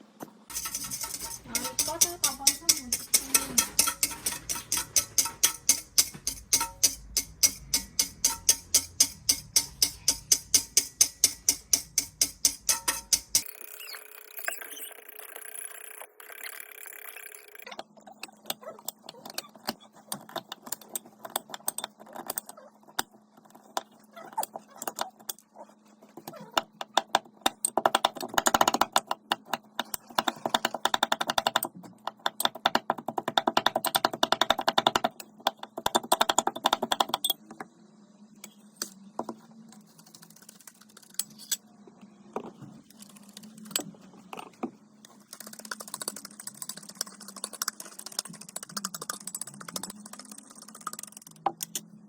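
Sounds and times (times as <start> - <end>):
utensil clicking against mixing bowl: 0.5 - 13.4
faint steady hum: 17.7 - 52.0.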